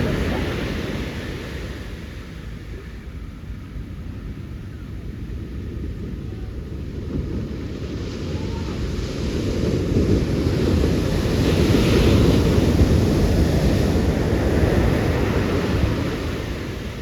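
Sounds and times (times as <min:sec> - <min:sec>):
waves breaking: 0:00.0 - 0:03.0, 0:06.6 - 0:17.0
wind buffeting microphone: 0:00.0 - 0:17.0.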